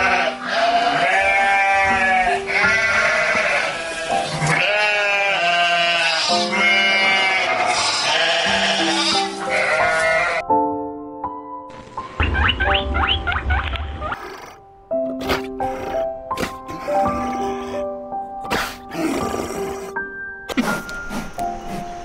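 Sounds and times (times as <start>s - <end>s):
sheep bleating: 0.0s - 10.4s
background music with held notes: 0.0s - 22.0s.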